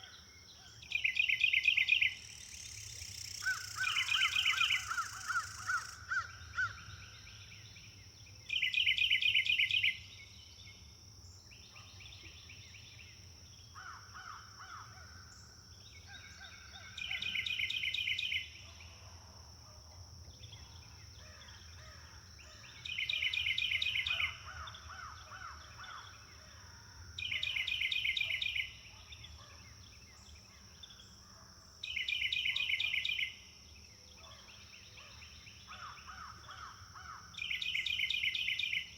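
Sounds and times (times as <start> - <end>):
softer bird calls: 0.0 - 6.8.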